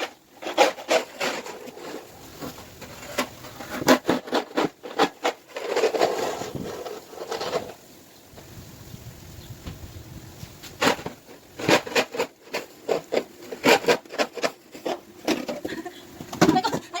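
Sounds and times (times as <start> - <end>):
snow crunching and scraping: 0.0 - 7.8.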